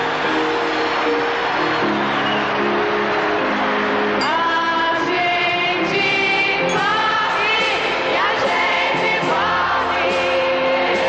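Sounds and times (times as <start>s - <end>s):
band playing soul music: 0.0s - 11.0s
voices singing in harmony: 4.2s - 11.0s.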